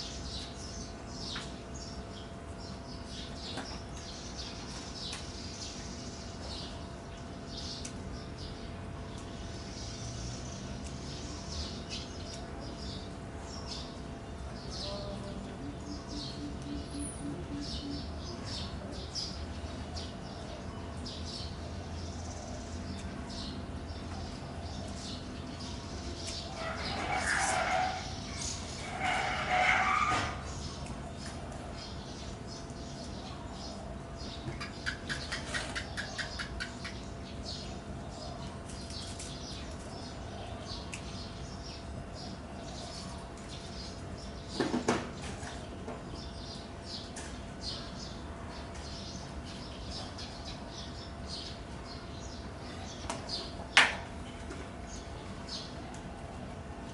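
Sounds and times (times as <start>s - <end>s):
small birds chirping: 0.0s - 56.9s
steady low hum: 0.0s - 56.9s.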